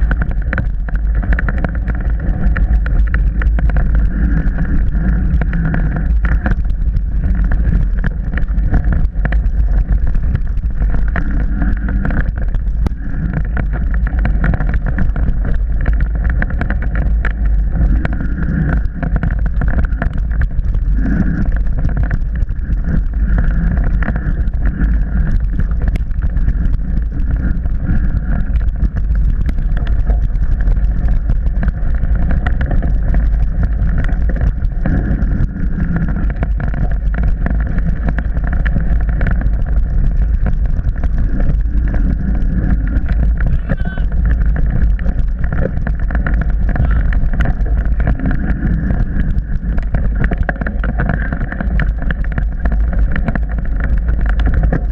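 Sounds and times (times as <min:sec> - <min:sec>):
bike rattling over rough ground: 0:00.0 - 0:54.9
mountain bike rumble: 0:00.0 - 0:54.9
wind on microphone: 0:00.0 - 0:54.9.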